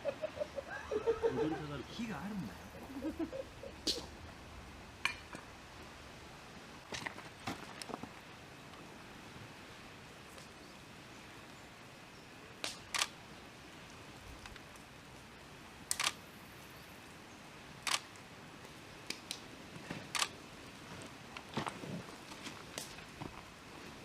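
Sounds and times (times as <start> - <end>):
faint steady hiss: 0.0 - 24.0
camera shutter clicks: 12.9 - 13.1, 15.9 - 16.2, 17.8 - 18.1.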